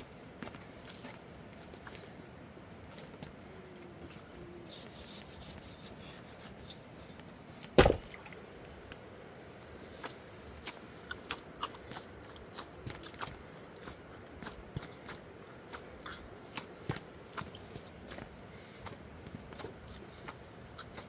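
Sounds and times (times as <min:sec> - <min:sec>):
loud sharp knock: 0:07.8 - 0:08.2.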